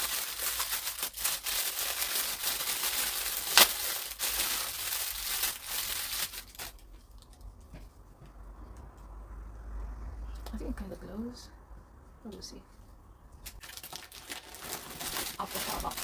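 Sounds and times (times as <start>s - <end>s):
plastic packaging crinkling: 0.0s - 7.4s, 13.4s - 16.0s.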